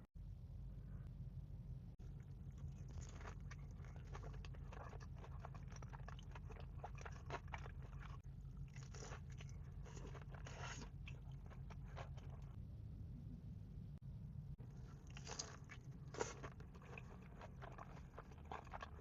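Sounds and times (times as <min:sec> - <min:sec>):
person chewing crunchy food: 0:02.0 - 0:12.6, 0:14.6 - 0:19.0.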